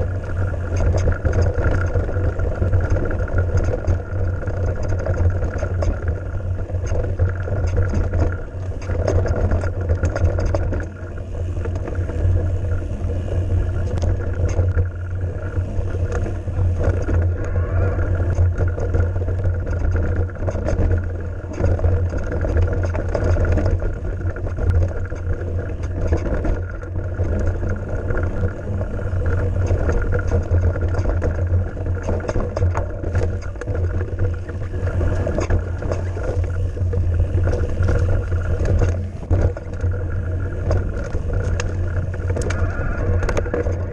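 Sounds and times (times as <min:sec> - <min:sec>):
bike clicks and rattles: 0:00.0 - 0:43.9
bike tyre noise: 0:00.0 - 0:43.9
wind rumble on microphone: 0:00.0 - 0:43.9.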